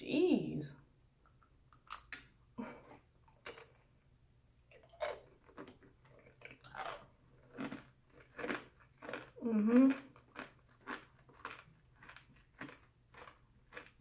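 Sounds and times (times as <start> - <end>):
crunching candied fruit: 4.7 - 14.0.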